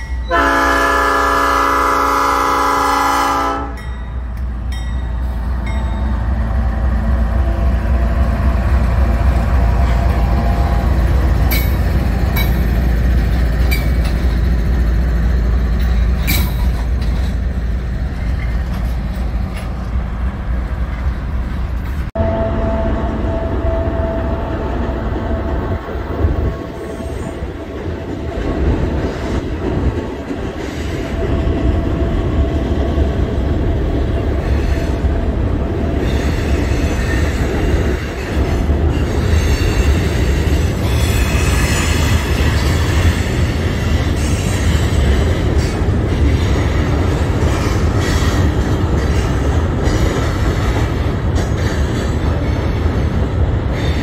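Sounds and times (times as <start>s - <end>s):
freight train rumbling: 0.0s - 54.0s.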